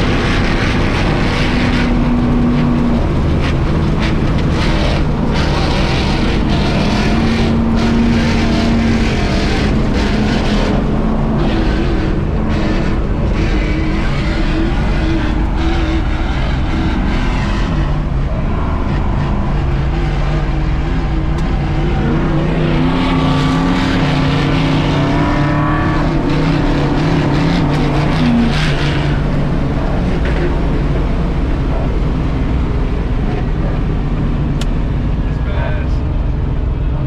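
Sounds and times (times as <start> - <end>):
steady rushing noise: 0.0 - 37.0
truck engine running hard: 0.0 - 37.0.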